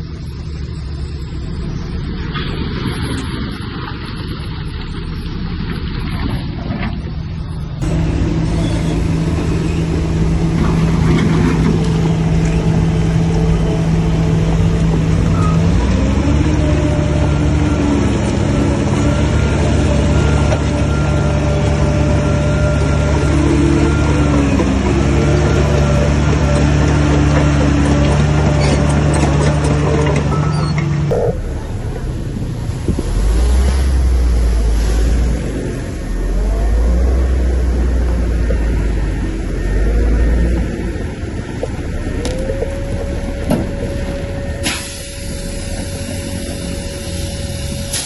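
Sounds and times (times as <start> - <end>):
heavy diesel engine running: 0.0 - 48.0.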